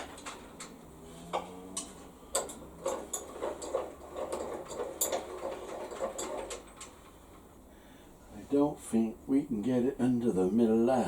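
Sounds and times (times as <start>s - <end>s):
metal tools clicking and knocking: 1.8s - 6.9s.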